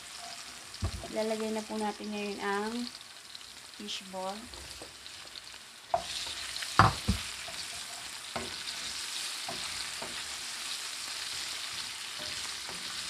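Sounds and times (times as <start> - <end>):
food sizzling in hot oil: 0.0 - 13.0
utensil knocking on pan: 6.8 - 7.6.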